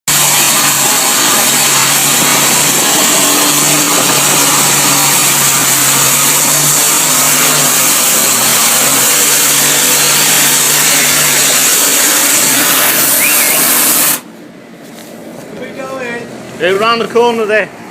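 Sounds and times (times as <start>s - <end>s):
loud steady hiss: 0.1s - 14.3s
engine drone: 0.1s - 17.9s.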